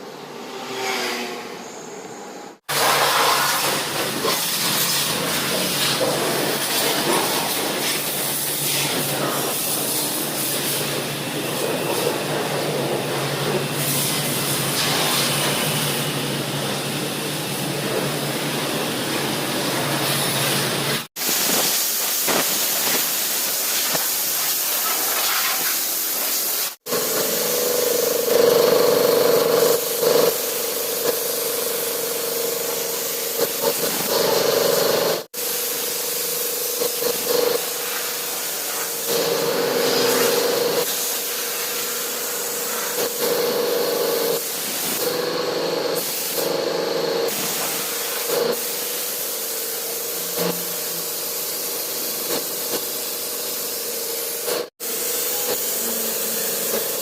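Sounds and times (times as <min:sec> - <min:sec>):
high-pressure spray hissing: 0:02.6 - 0:12.1, 0:19.6 - 0:57.0.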